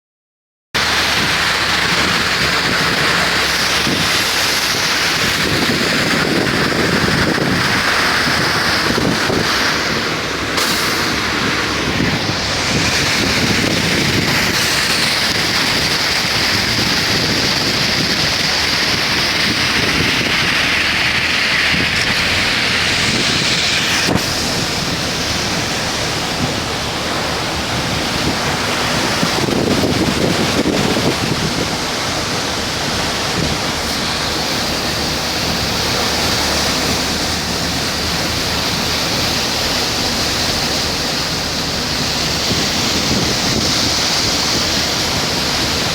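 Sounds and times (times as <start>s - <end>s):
heavy rain pouring: 0.8s - 45.9s.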